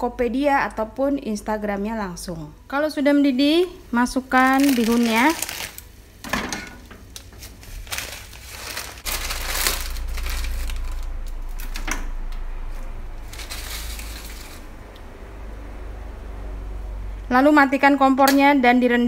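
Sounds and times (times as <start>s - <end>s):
dry noodles crackling: 4.1s - 6.3s, 6.9s - 15.1s
steady low rumble: 7.8s - 19.0s.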